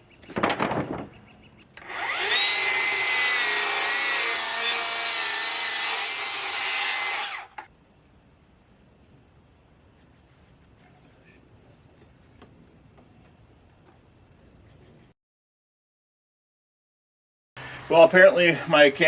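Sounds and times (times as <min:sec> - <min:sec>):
electric saw cutting wood: 0:01.8 - 0:07.7.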